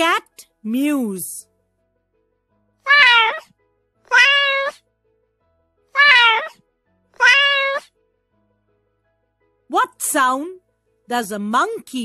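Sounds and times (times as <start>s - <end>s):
cat meowing: 2.8s - 3.5s, 4.1s - 4.8s, 5.9s - 6.6s, 7.2s - 7.9s.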